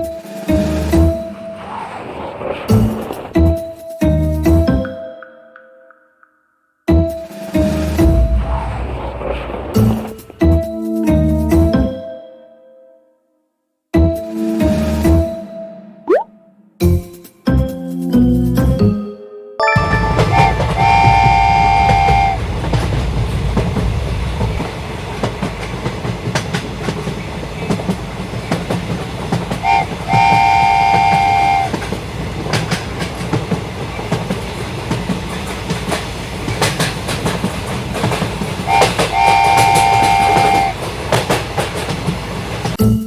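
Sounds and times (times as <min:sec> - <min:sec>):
train horn blasts: 0:20.1 - 0:22.5, 0:29.6 - 0:31.8, 0:38.7 - 0:40.9
train wheels clattering on track: 0:20.4 - 0:42.8.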